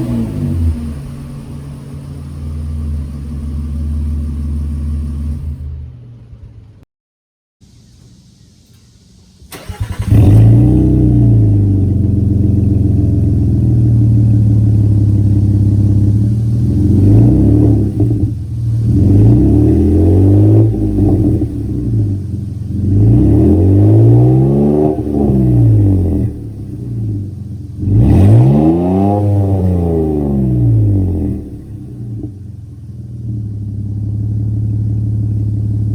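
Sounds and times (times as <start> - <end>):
engine idling and revving: 0.0 - 6.8, 9.5 - 35.9
engine starting: 8.7 - 11.3.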